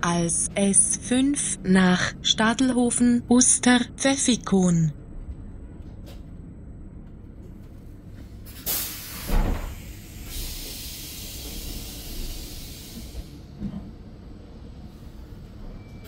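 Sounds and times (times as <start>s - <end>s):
low rumble of train: 0.0s - 16.0s
compressed air hissing: 8.6s - 13.4s.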